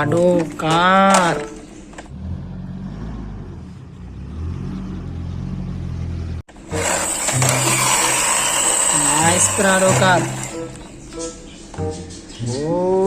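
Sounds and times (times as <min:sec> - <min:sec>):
car engine drone: 0:01.7 - 0:11.0.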